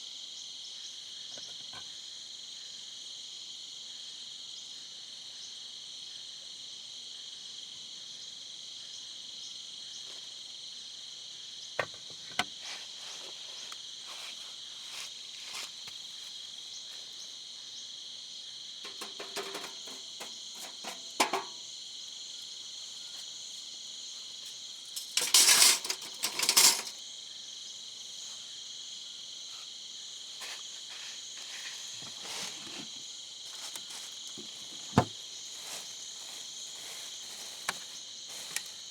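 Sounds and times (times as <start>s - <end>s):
crickets chirring: 0.0s - 38.9s
clicks and knocks: 18.9s - 21.6s.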